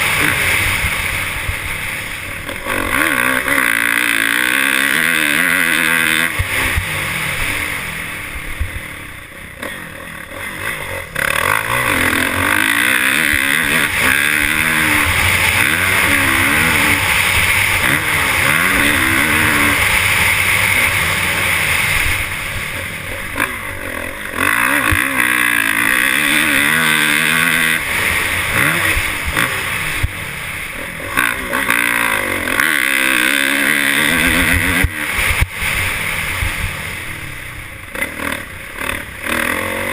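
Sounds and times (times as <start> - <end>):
loud rushing noise: 0.0 - 31.0
motocross bike engine revving: 0.0 - 39.9.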